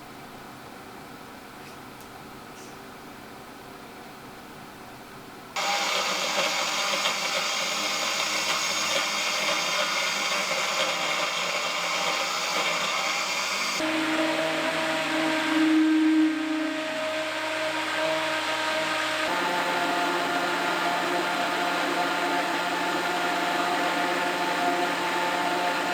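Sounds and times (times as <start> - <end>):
loud machine whir: 5.6 - 25.9.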